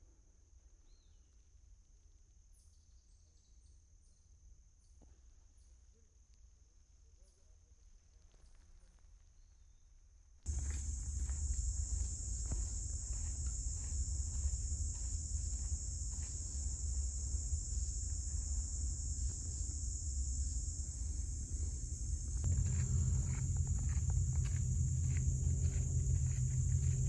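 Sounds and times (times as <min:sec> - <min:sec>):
high-pitched insect chorus: 0:10.5 - 0:27.0
low hum: 0:10.5 - 0:27.0
low rumble: 0:10.5 - 0:27.0.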